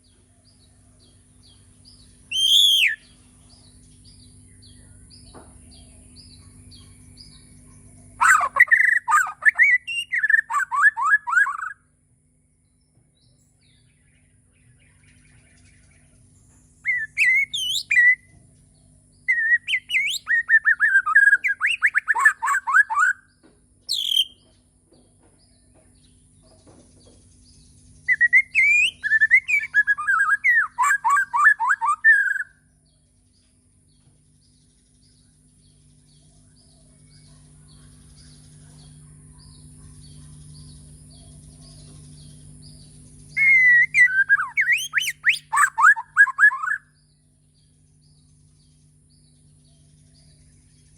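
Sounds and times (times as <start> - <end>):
faint steady hum: 0.0 - 50.9
bird singing whistled phrases: 2.3 - 3.2, 8.2 - 11.8, 16.8 - 18.3, 19.3 - 23.3, 23.9 - 24.4, 28.0 - 32.6, 43.3 - 46.9.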